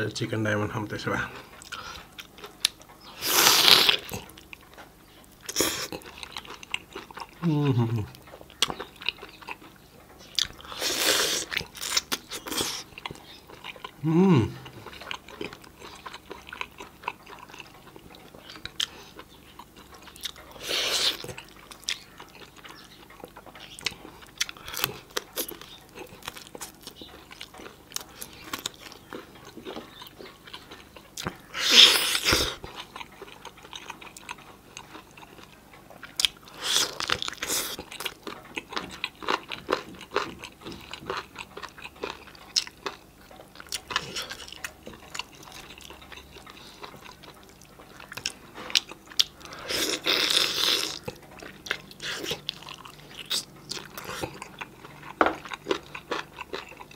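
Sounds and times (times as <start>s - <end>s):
chewing and crunching chicken: 1.0s - 56.9s.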